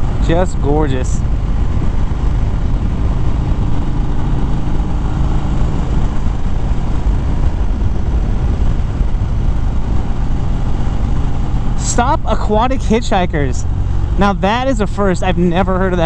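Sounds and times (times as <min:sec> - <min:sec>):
wind noise on microphone: 0:00.0 - 0:11.8
motorcycle engine running: 0:00.0 - 0:16.0.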